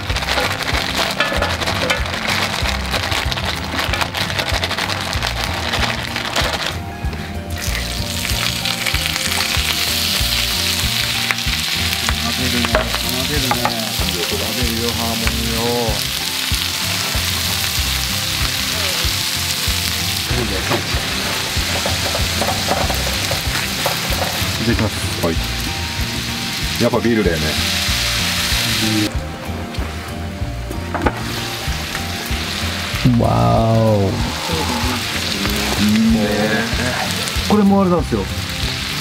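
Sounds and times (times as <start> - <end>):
utensil stirring food: 0.0 - 6.8, 7.6 - 29.0
food sizzling on a griddle: 0.0 - 39.0.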